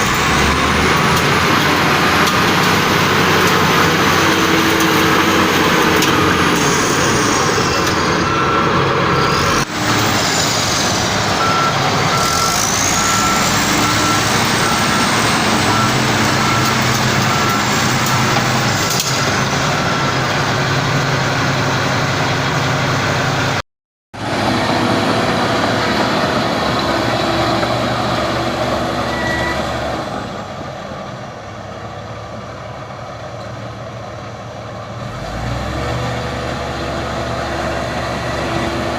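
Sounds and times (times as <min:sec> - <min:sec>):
bulldozer diesel engines running: 0:00.0 - 0:23.6, 0:24.2 - 0:38.9
reversing alarm beeping: 0:11.4 - 0:20.3.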